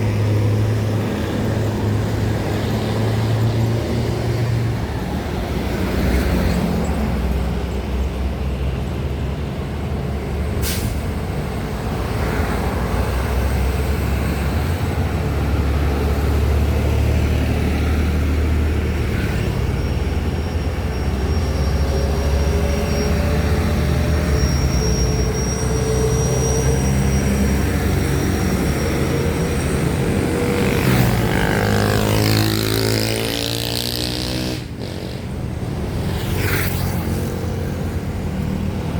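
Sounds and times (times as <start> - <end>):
diesel truck engine rumble: 0.0 - 32.8
engine revving up: 26.9 - 35.3.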